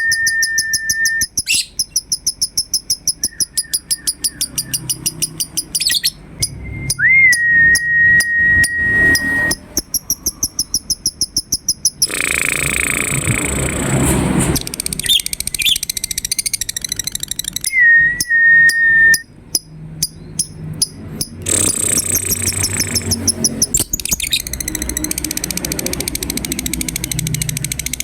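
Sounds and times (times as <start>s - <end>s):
lovebirds chirping: 0.0s - 6.6s, 14.8s - 18.3s, 19.6s - 25.5s
held bird whistle: 0.0s - 13.4s, 14.9s - 19.3s, 20.4s - 26.2s.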